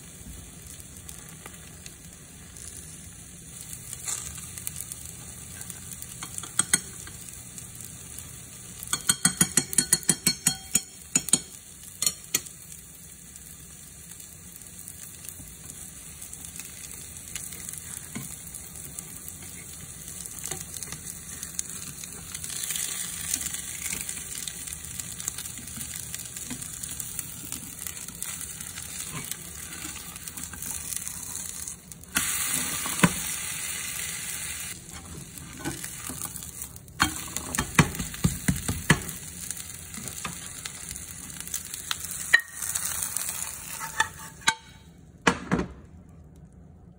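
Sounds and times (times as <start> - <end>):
omelette sizzling in a pan: 0.0 - 44.6
utensils tapping a pan: 6.1 - 7.2, 8.8 - 12.5, 37.0 - 39.2, 42.2 - 42.9, 43.7 - 44.9
spatula clacking on a pan: 8.8 - 12.5.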